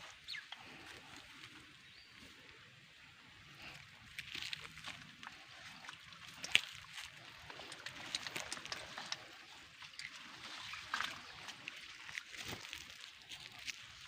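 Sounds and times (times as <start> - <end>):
shallow water sloshing: 3.6 - 14.0
small clicks and splashes: 3.6 - 14.0.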